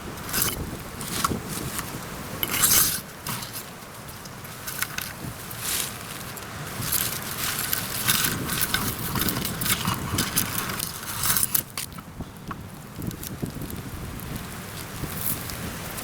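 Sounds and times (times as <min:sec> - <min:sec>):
rustling needles: 0:00.0 - 0:12.0
branches snapping: 0:00.0 - 0:12.1.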